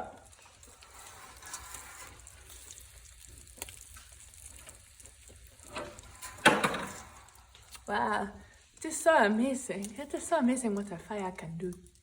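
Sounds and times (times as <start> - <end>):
wood fire hissing and crackling: 0.0 - 12.0.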